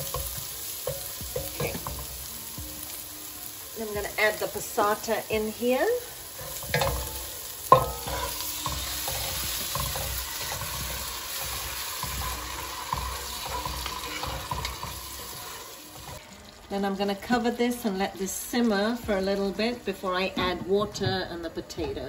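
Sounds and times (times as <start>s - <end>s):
onions sizzling in hot oil: 0.0s - 21.1s
wooden spoon scraping pot: 6.4s - 16.2s.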